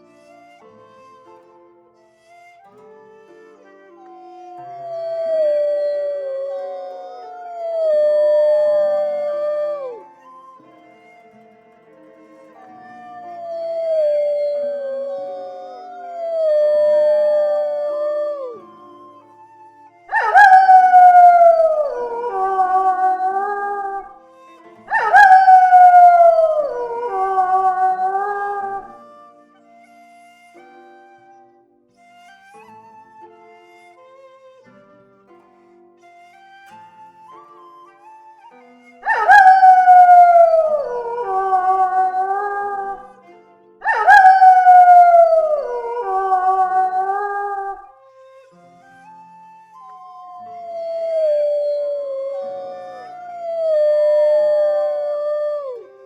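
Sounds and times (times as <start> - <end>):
soft flute music: 0.0 - 56.0
wolf howling: 4.2 - 10.4, 12.6 - 19.5, 20.1 - 24.2, 24.9 - 29.1, 39.0 - 43.2, 43.8 - 47.9, 49.0 - 56.0.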